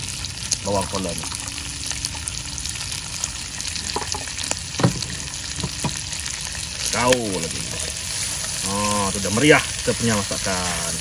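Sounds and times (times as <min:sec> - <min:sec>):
food sizzling in hot oil: 0:00.0 - 0:11.0
short knocks: 0:04.8 - 0:06.0.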